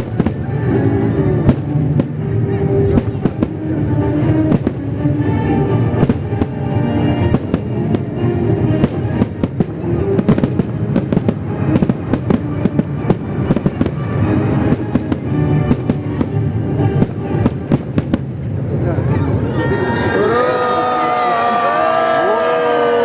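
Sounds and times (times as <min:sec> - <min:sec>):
fireworks bangs: 0:00.0 - 0:19.3
music playing: 0:00.0 - 0:22.5
crowd cheering: 0:18.8 - 0:23.0
long drawn-out shouts: 0:18.9 - 0:23.0.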